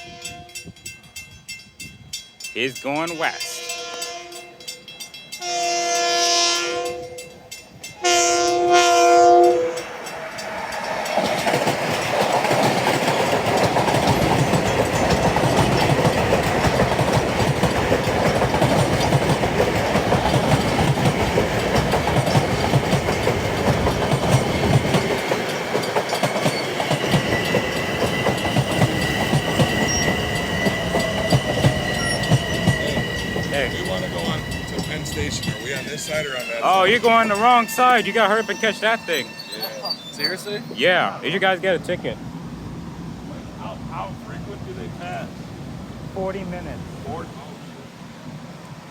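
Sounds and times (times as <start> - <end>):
train horn blasts: 0.0 - 0.9, 3.3 - 4.7, 5.3 - 10.2, 27.2 - 40.6
train wheels clacking on rails: 0.0 - 40.7.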